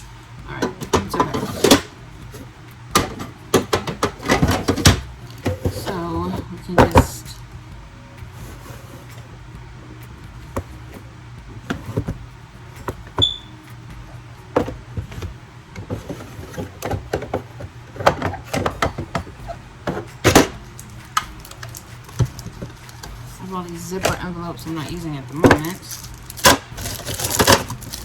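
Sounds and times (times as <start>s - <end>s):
steady low hum: 0.0s - 28.0s
small containers clicking and knocking: 19.9s - 28.0s.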